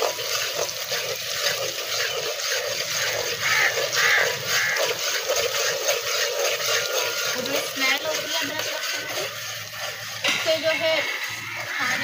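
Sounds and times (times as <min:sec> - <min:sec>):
metal spatula stirring and scraping: 0:00.0 - 0:12.0.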